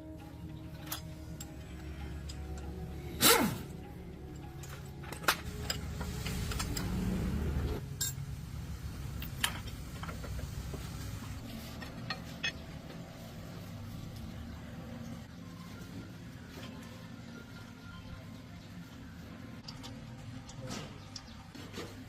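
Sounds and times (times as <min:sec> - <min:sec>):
metal tools clinking: 0:11.6 - 0:12.8.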